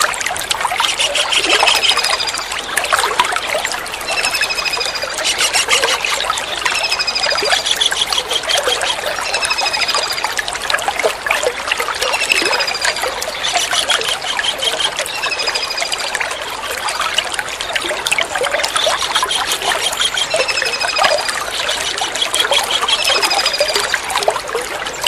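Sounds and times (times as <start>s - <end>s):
water trickling and splashing: 0.0s - 25.0s
kingfisher trills: 4.1s - 10.2s.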